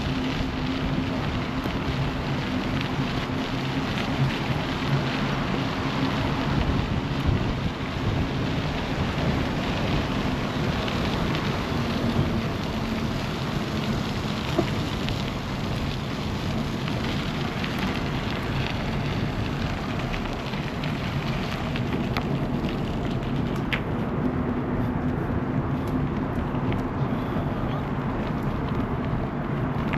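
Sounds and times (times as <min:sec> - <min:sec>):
wind buffeting microphone: 0:00.0 - 0:29.9.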